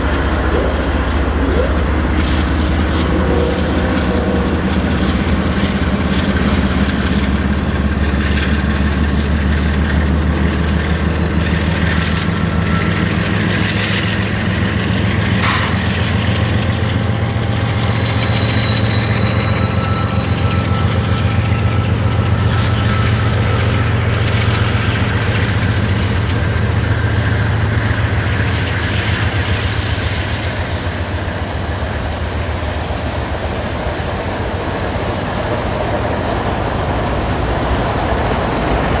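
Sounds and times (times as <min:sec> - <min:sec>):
diesel engine drone: 0:00.0 - 0:08.8
freight train rumbling past: 0:00.0 - 0:39.0.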